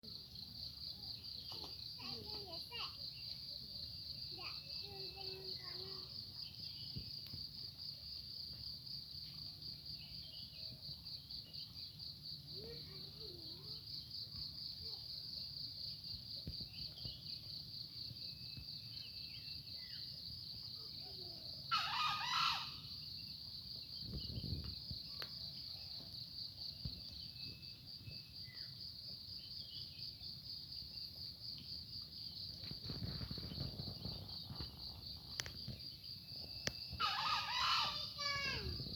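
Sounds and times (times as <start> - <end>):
insects trilling: 0.0 - 38.9
faint bird calls: 20.8 - 23.3, 36.4 - 38.9
loud bird call: 21.7 - 23.0, 36.9 - 38.8.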